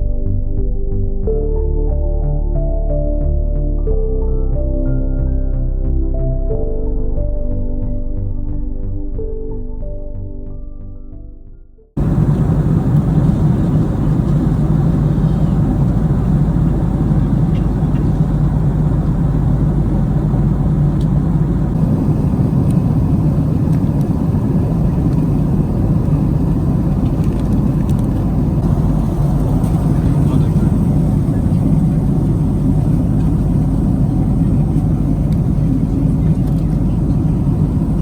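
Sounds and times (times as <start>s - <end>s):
airliner cabin rumble: 12.0s - 38.0s.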